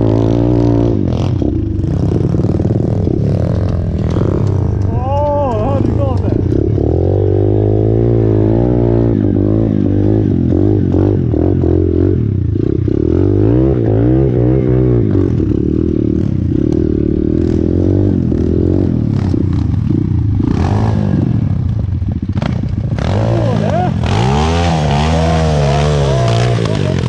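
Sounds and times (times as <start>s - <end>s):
bike rattling: 0.0s - 9.1s, 15.0s - 27.0s
motorcycle engine revving: 0.0s - 27.0s.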